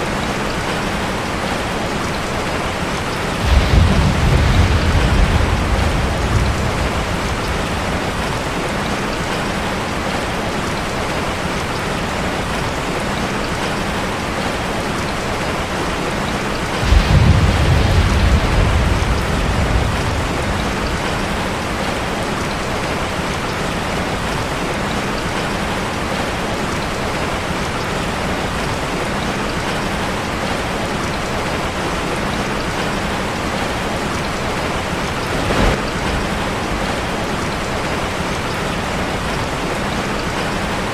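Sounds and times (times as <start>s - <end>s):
rain drumming on metal roof: 0.0s - 40.9s
low rumble of thunder: 2.3s - 10.2s, 16.4s - 23.4s, 34.5s - 39.4s.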